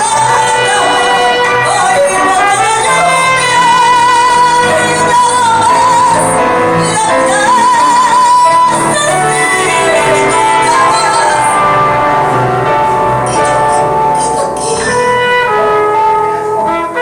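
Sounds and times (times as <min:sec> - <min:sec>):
woman singing a ballad: 0:00.0 - 0:16.5
piano accompaniment: 0:00.0 - 0:17.0.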